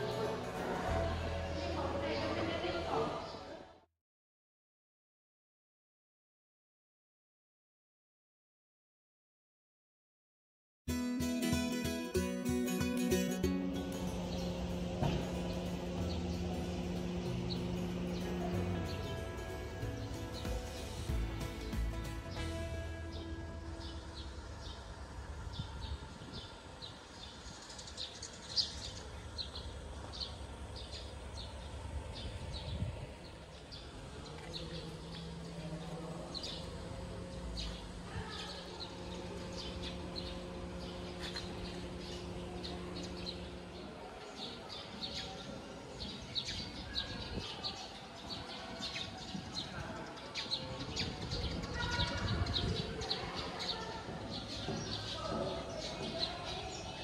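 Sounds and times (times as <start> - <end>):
outdoor background noise: 0.0 - 3.9, 11.4 - 57.0
low hum: 13.4 - 27.7, 29.0 - 44.1
small birds chirping: 26.4 - 57.0.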